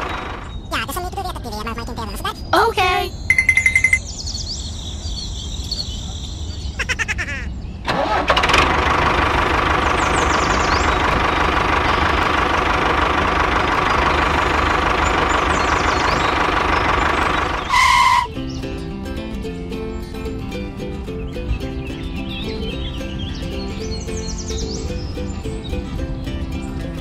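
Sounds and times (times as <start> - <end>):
engine running: 0.0 - 0.7, 7.8 - 27.0.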